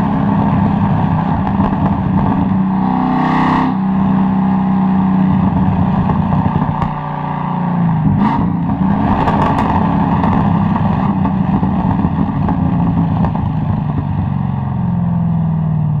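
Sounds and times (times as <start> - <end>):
car engine running while driving: 0.0 - 16.0.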